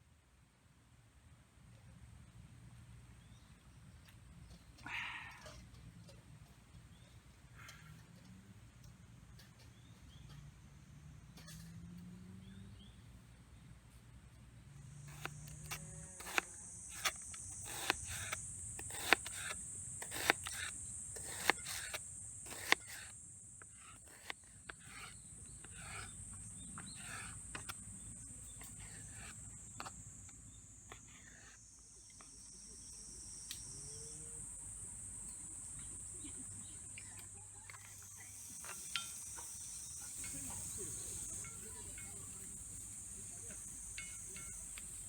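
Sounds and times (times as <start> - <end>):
high-pitched insect chorus: 15.8 - 45.0.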